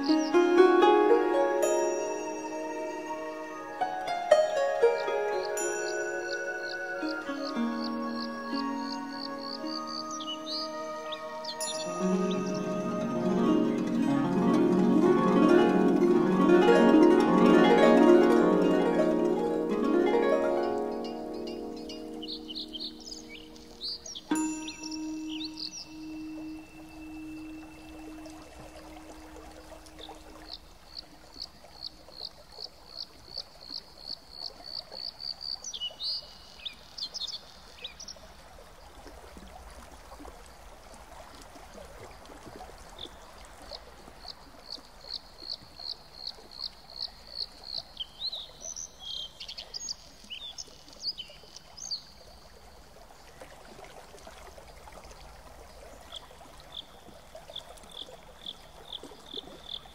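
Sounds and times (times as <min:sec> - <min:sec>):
songbird singing high notes: 0:00.0 - 0:30.6
faint background hiss: 0:00.0 - 0:59.9.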